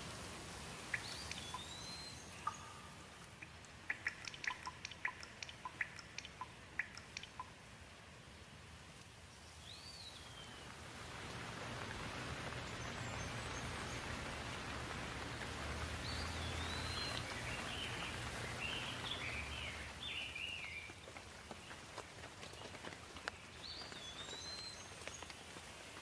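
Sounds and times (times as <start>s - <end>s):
water rushing: 0.0s - 9.3s, 10.0s - 26.0s
small bird chirping: 0.8s - 7.6s, 16.0s - 25.5s.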